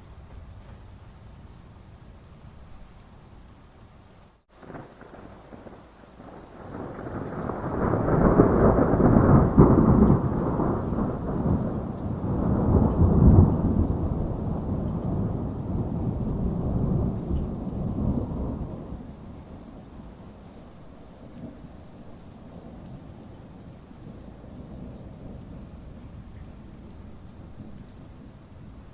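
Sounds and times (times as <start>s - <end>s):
steady rain: 0.0s - 28.9s
thunder rolling: 4.6s - 19.6s.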